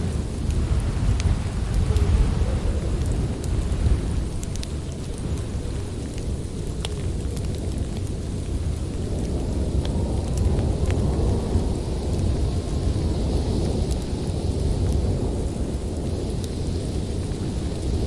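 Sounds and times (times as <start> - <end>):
storm wind rumbling: 0.0 - 18.0
wood fire crackling: 0.0 - 18.0.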